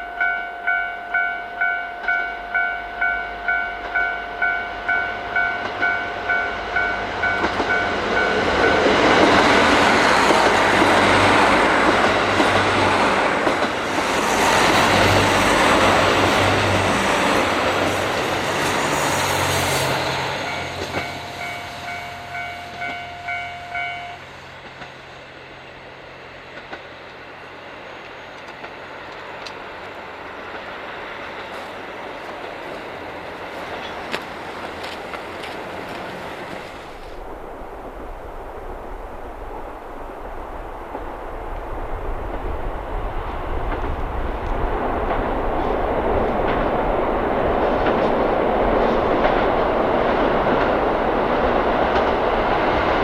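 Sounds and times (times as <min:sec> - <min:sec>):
level crossing bell dinging: 0:00.0 - 0:08.4
diesel train passing: 0:00.0 - 0:53.0.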